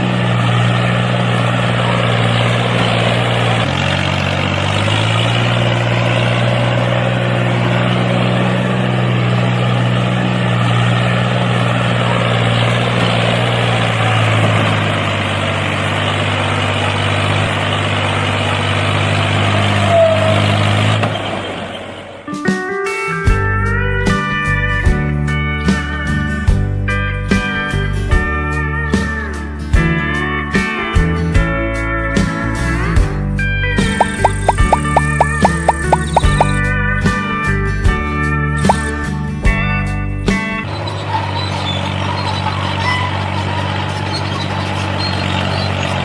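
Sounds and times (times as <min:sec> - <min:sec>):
vehicle engine drone: 0:00.0 - 0:22.4, 0:33.6 - 0:36.8, 0:38.6 - 0:39.4, 0:40.3 - 0:46.0.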